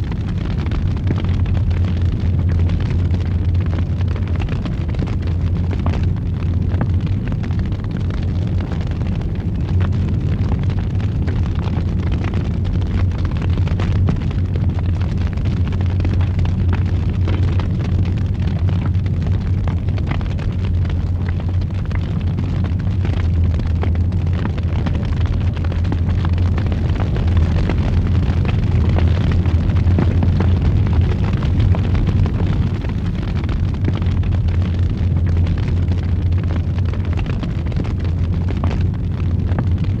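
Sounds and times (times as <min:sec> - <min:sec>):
fire crackling and popping: 0:00.0 - 0:40.0
fire roaring in fireplace: 0:00.0 - 0:40.0.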